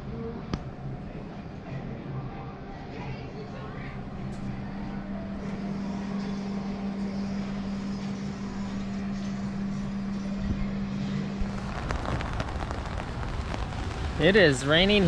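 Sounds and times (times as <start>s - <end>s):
street noise: 10.5s - 15.0s.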